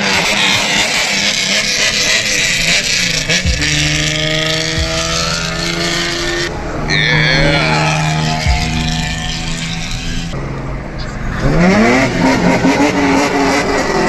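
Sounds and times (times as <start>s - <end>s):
car engines running: 0.0s - 14.0s
falling whine: 1.6s - 11.6s.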